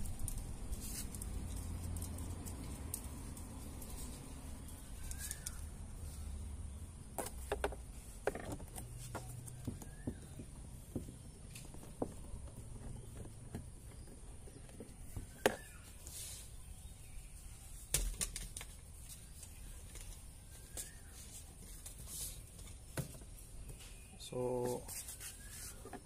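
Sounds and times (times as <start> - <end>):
light clicks taps and rustles: 0.0 - 5.7.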